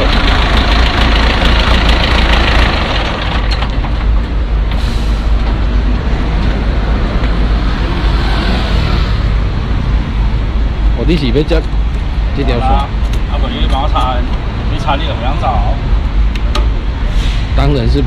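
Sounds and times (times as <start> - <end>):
truck diesel engine idling: 0.0 - 5.8.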